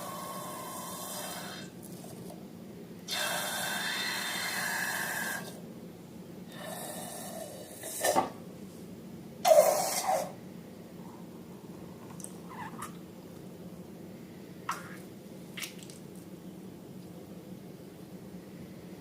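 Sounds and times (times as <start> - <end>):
air hissing out of balloon: 3.1 - 5.5.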